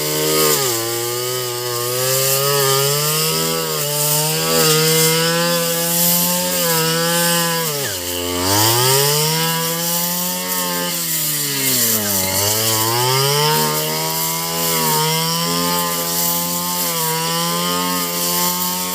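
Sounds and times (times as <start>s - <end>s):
small engine running at high speed: 0.0s - 18.9s.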